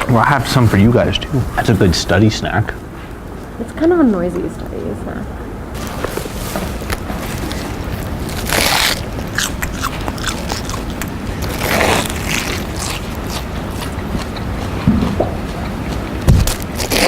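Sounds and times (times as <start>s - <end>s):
potato crisps being crunched: 8.3s - 13.5s.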